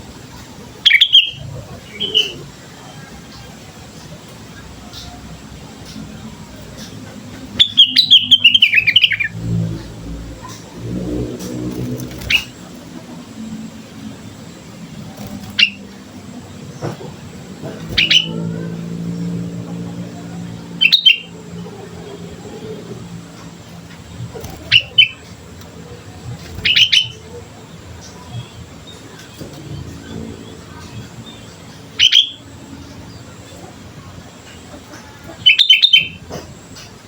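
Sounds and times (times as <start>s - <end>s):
bulbul singing: 0.7s - 3.2s, 4.4s - 37.0s.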